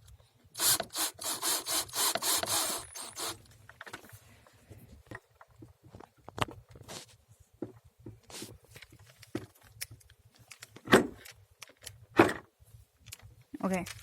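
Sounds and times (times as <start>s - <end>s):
clicks and knocks of handling parts: 1.8s - 4.2s, 7.6s - 12.4s, 13.0s - 14.0s.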